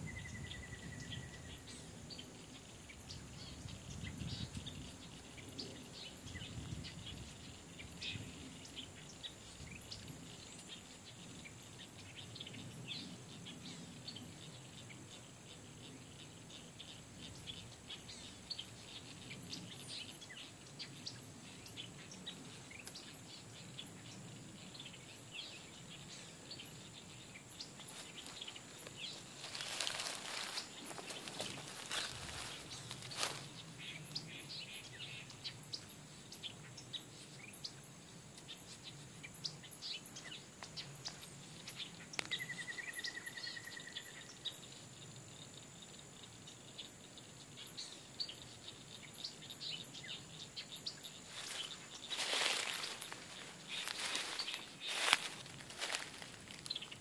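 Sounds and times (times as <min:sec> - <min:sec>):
birds chirping: 0:00.0 - 0:57.0
rustling: 0:27.8 - 0:33.6, 0:51.3 - 0:57.0
bird trill: 0:39.2 - 0:44.7.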